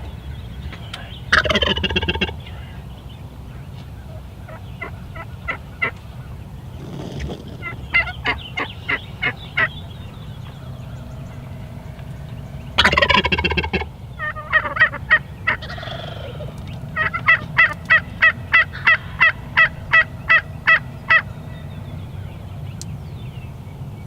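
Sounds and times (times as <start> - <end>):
turkey yelps: 1.3 - 2.8, 4.0 - 6.4, 7.0 - 10.8, 12.8 - 21.6
turkey gobbling: 1.3 - 22.3.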